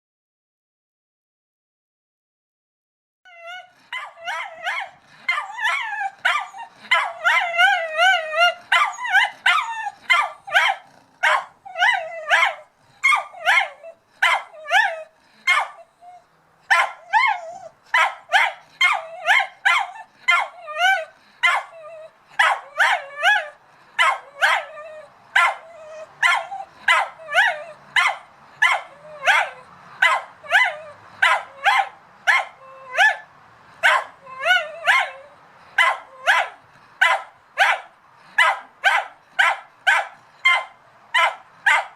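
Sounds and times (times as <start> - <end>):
dog whining yelps: 3.3 - 41.9
dog barking rapidly: 3.9 - 7.7, 8.7 - 14.9, 15.5 - 15.8, 16.7 - 20.6, 21.4 - 21.8, 22.4 - 24.7, 25.4 - 35.2, 35.8 - 41.9.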